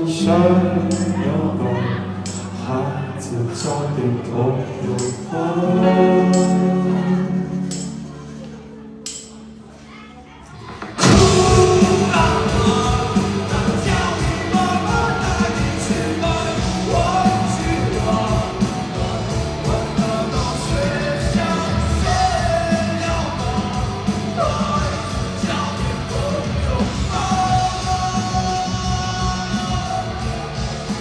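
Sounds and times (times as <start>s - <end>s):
lead vocal singing and yelling: 0.0s - 8.5s, 10.8s - 31.0s
live rock band playing: 5.0s - 9.6s, 10.7s - 31.0s.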